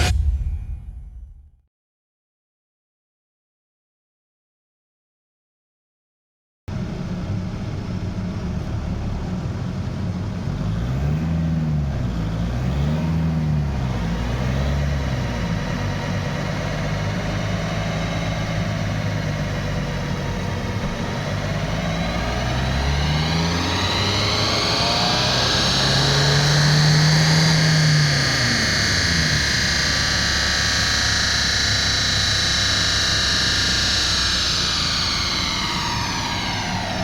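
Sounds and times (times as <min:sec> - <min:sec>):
diesel engine idling and revving: 0:06.7 - 0:37.0.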